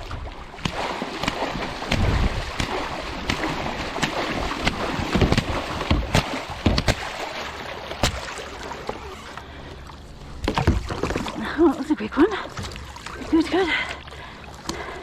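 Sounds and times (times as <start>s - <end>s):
sharp knocks and splashes: 0.0s - 9.2s, 10.4s - 11.6s
water sloshing around a kayak: 0.0s - 15.0s
wind on the microphone: 1.9s - 2.7s.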